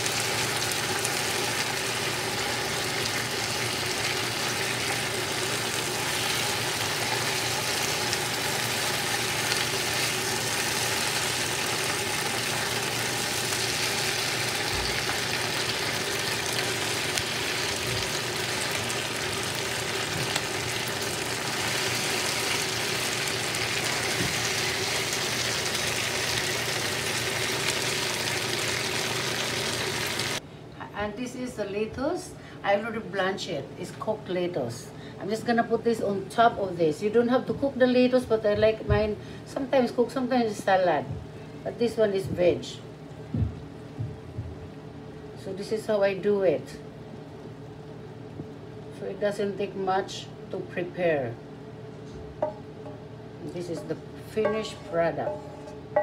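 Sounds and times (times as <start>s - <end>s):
food sizzling in a frying pan: 0.0s - 30.4s.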